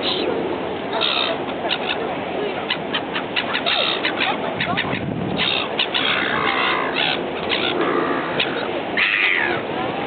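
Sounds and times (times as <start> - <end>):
birds calling: 0.0 - 9.8
boat engine rumble: 0.0 - 10.0.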